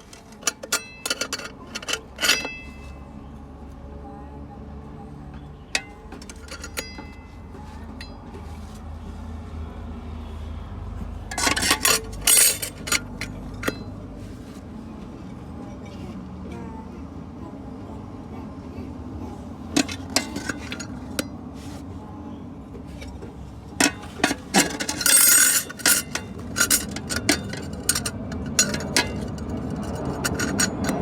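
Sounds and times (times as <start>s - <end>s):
steel parts clinking: 0.0s - 3.1s, 5.7s - 8.2s, 11.3s - 14.0s, 19.7s - 21.4s, 22.8s - 31.0s.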